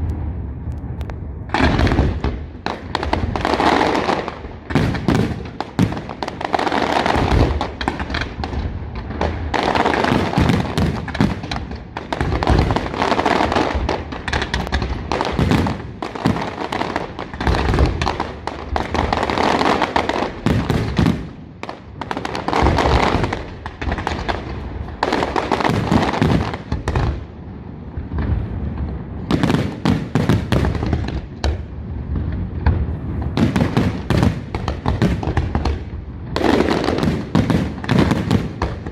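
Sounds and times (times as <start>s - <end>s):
fireworks crackling: 0.0s - 38.9s
fireworks shell bursts and booms: 1.5s - 27.2s, 28.0s - 38.9s.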